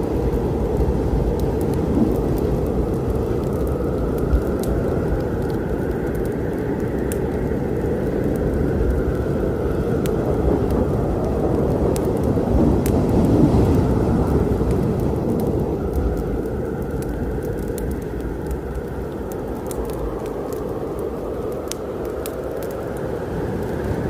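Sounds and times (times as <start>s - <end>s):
heavy rain: 0.0s - 24.0s
wood fire crackling: 0.0s - 24.0s.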